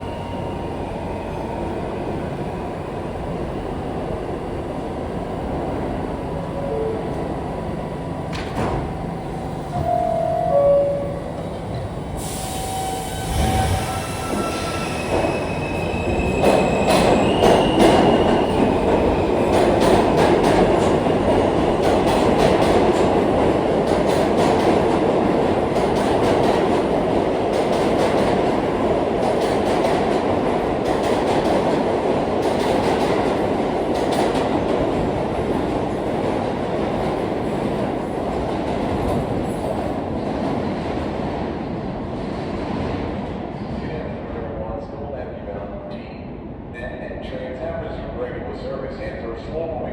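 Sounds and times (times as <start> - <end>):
subway train motor whine: 0.0 - 22.1.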